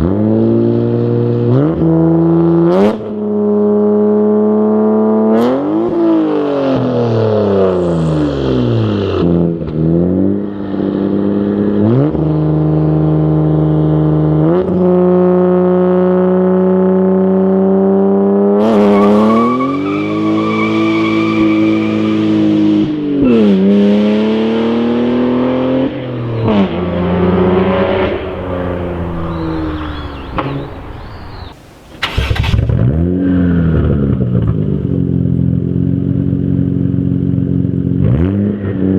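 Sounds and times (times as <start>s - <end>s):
car engine revving: 0.0s - 38.9s
loud noisy exhaust burst: 25.9s - 33.1s.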